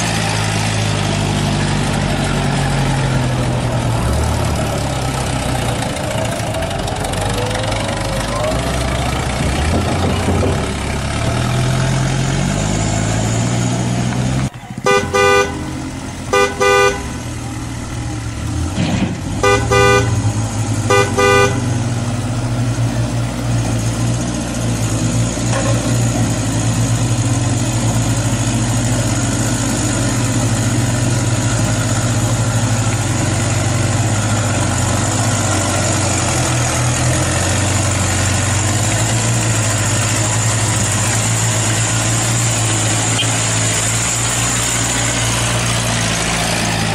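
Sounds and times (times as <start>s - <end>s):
horn toots: 14.8s - 18.1s, 19.2s - 22.3s, 43.1s - 44.1s.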